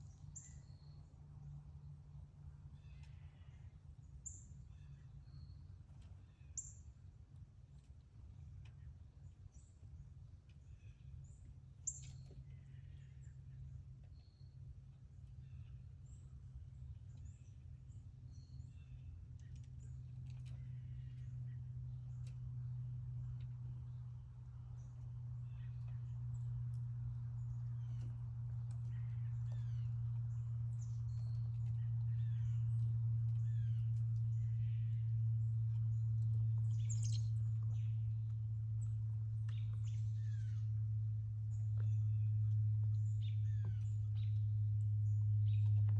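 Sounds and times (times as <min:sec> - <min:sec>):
steady low hum: 0:00.0 - 0:45.9
birds chirping: 0:09.5 - 0:45.9.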